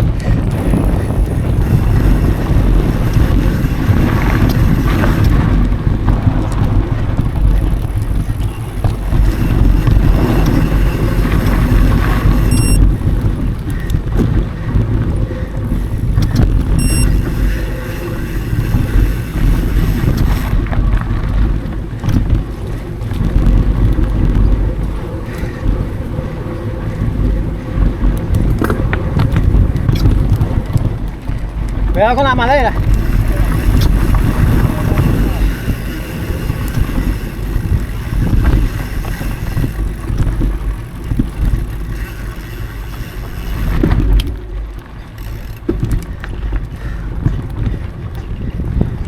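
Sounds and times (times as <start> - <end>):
mountain bike rumbling and rattling: 0.0 - 49.0
wind buffeting microphone: 0.0 - 49.0
short high beeps: 10.1 - 12.9, 16.8 - 20.4.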